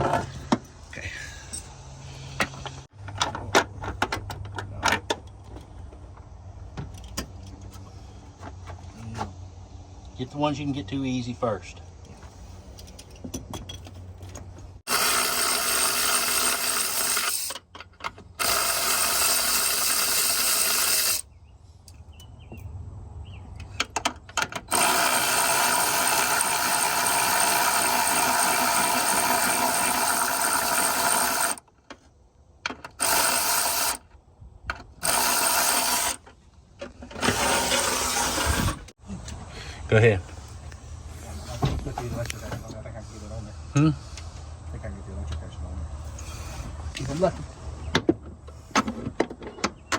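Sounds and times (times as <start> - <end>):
electric ratchet running: 14.9 - 17.6, 18.4 - 21.3, 24.7 - 31.7, 32.9 - 34.1, 35.0 - 36.2, 37.2 - 38.9.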